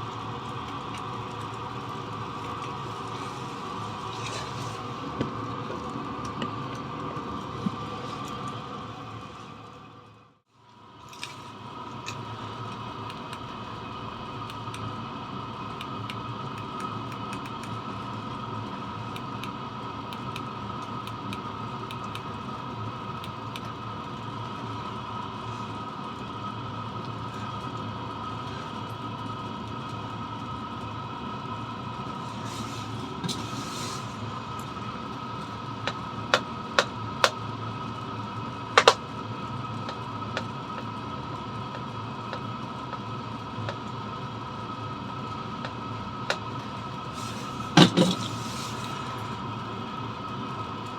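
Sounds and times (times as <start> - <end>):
blower whine: 0.0 - 50.9
diesel heater humming: 0.0 - 50.9.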